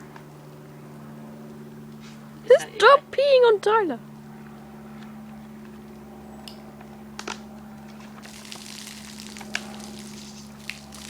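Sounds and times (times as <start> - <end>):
steady low hum: 0.0 - 11.0
carbonated drink fizzing: 8.2 - 11.0.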